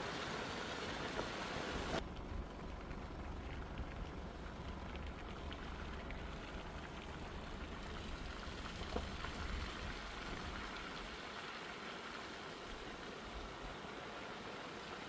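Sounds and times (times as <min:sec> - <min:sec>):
steady low rumble: 0:02.0 - 0:10.8
raindrops ticking: 0:02.0 - 0:11.2.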